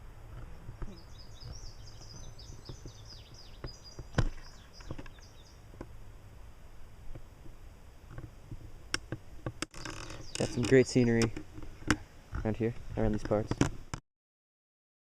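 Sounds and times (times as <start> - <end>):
songbird chirping: 0.0 - 5.9, 9.7 - 13.5
low steady rumble: 0.0 - 13.9.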